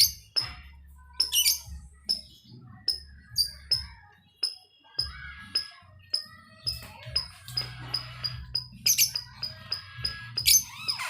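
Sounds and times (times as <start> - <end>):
lovebirds chirping: 1.2 - 11.0
bird screeching: 7.5 - 11.0.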